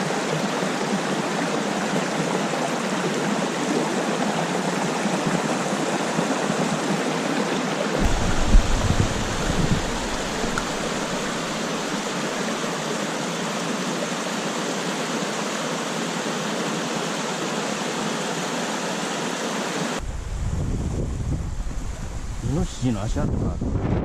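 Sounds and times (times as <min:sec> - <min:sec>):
stream water rushing: 0:00.0 - 0:20.0
low rumble: 0:08.0 - 0:12.0.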